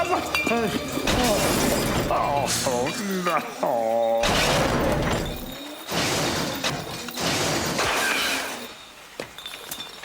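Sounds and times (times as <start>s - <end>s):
music: 0.0s - 5.4s.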